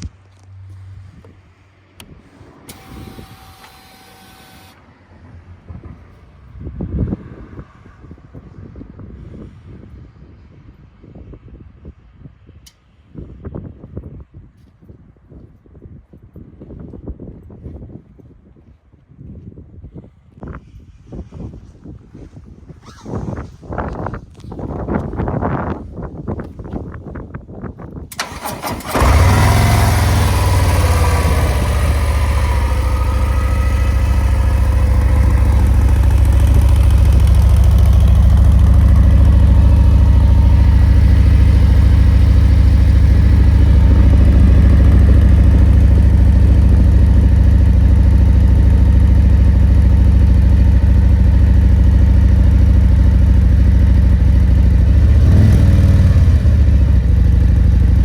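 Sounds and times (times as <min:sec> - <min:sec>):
motorcycle engine starting and idling: 0:01.9 - 0:04.8, 0:22.8 - 0:25.2, 0:28.1 - 0:58.0.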